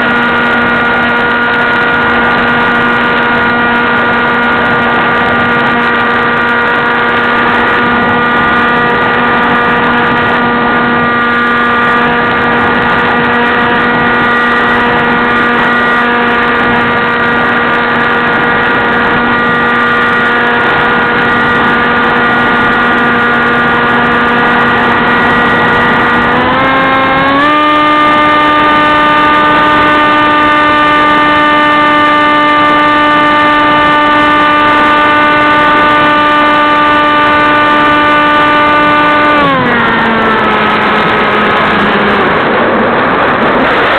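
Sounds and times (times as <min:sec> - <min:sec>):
model plane motor whining: 0:00.0 - 0:43.6
rush of air: 0:39.8 - 0:43.9.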